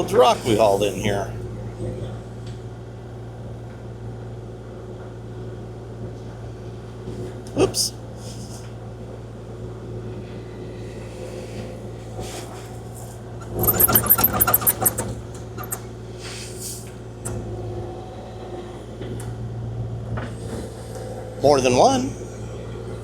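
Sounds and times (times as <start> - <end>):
loud rapid rattling: 13.4 - 15.8
diesel engine running: 13.4 - 15.9.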